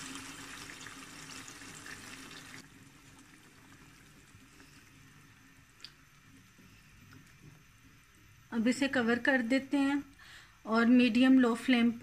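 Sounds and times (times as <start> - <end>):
chicken sizzling in a pan: 0.0 - 4.7.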